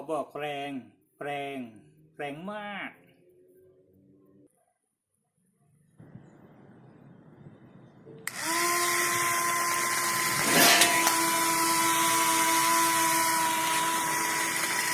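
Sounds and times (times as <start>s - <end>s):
electric motors whining: 8.2s - 14.9s.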